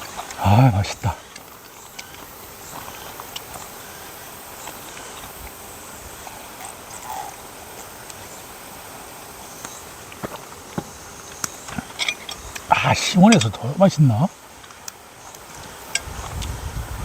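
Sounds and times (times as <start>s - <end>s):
high insect buzz: 0.0s - 17.0s.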